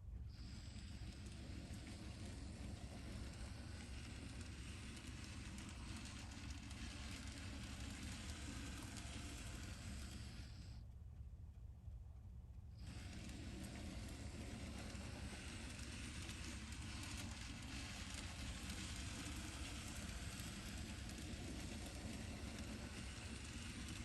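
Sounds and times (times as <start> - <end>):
model train whirring on track: 0.0 - 10.8, 12.8 - 24.0.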